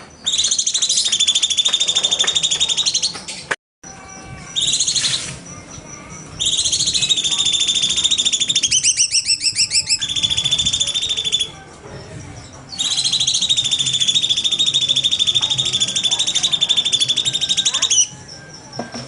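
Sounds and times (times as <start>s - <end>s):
songbird trilling: 3.9s - 19.0s.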